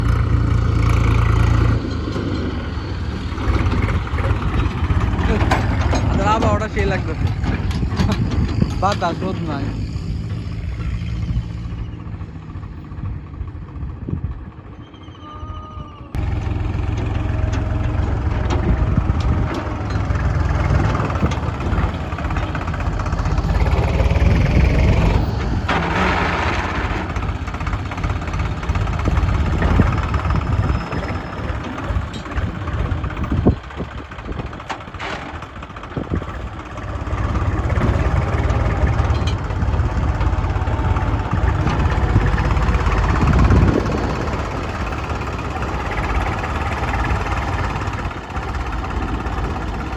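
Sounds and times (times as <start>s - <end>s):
diesel engines running: 0.0s - 49.9s.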